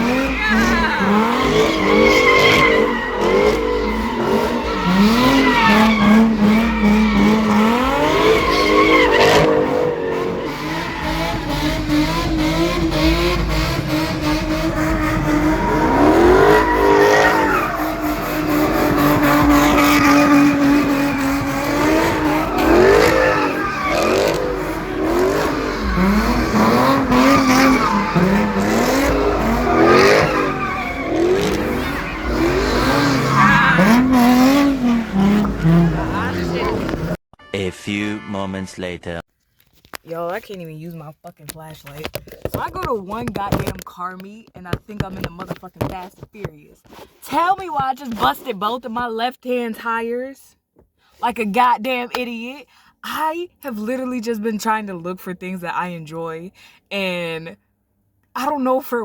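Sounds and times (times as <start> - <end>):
car engines revving: 0.0 - 37.2
tires squealing and skidding: 0.0 - 37.2.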